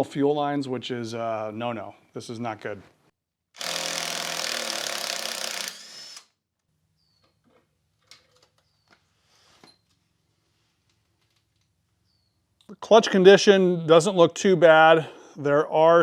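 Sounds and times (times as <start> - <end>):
handheld power tool running: 3.6 - 6.3.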